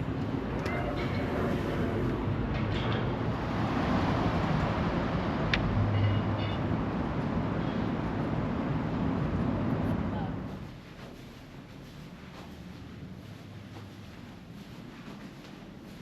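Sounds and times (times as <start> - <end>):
road traffic rumble: 0.0 - 15.9.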